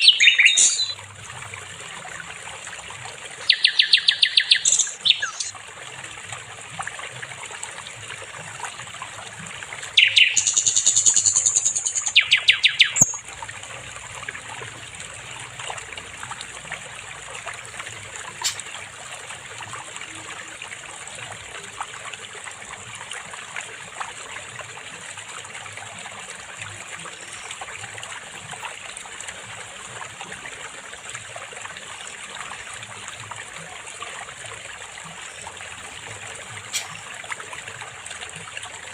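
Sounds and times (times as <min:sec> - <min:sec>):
flycatcher chirping: 0:00.0 - 0:01.0
trickling stream: 0:00.0 - 0:38.9.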